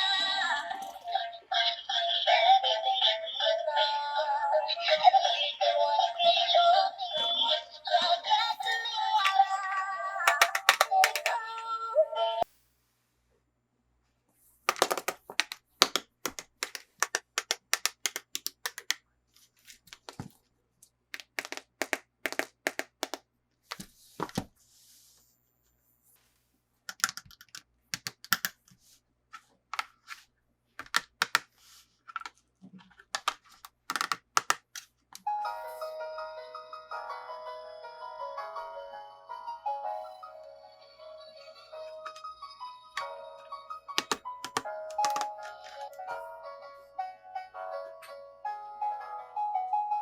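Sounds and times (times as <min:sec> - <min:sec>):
music: 0:00.0 - 0:12.4, 0:35.3 - 0:50.0
plastic toy pieces clicking: 0:08.7 - 0:09.6, 0:10.2 - 0:11.5, 0:14.7 - 0:19.0, 0:21.2 - 0:23.8, 0:26.9 - 0:28.6, 0:30.8 - 0:31.5, 0:33.1 - 0:34.9, 0:44.0 - 0:45.4.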